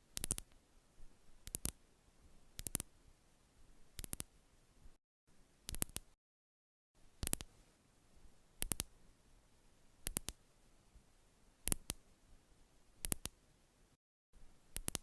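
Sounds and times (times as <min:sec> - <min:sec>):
sharp clicks: 0:01.4 - 0:01.8, 0:04.0 - 0:04.3, 0:05.7 - 0:06.1, 0:07.2 - 0:07.5, 0:08.6 - 0:08.9, 0:10.0 - 0:10.4, 0:11.7 - 0:12.0, 0:13.0 - 0:13.4, 0:14.7 - 0:15.0.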